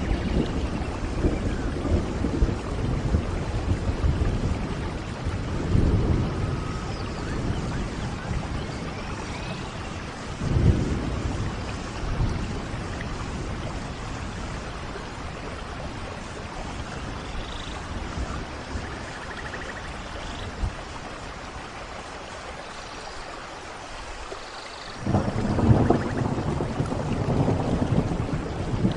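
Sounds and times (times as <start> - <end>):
thunder rolling: 0.0 - 14.9, 25.0 - 28.9
steady rain falling: 0.0 - 28.9.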